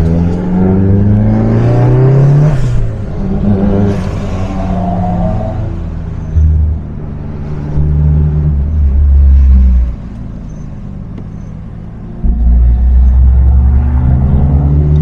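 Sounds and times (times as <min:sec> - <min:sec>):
car engine revving: 0:11.1 - 0:15.0.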